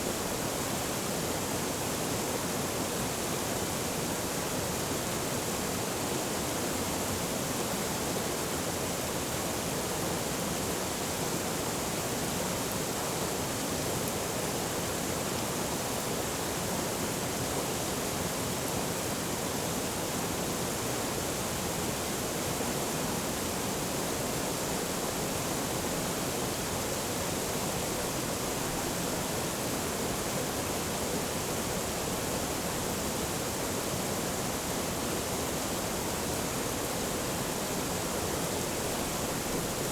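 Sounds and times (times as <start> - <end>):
stream water rushing: 14.2 - 39.9.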